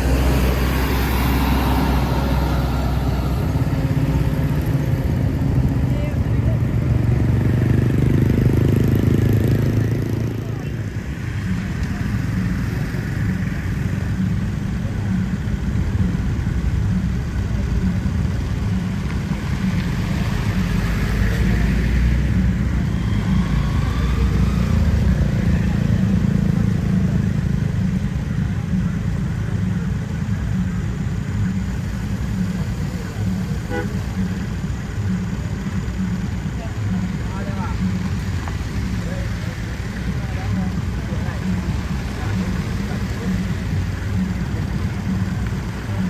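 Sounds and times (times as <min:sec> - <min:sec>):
diesel engine running: 0:00.0 - 0:46.0
road noise: 0:00.0 - 0:46.0.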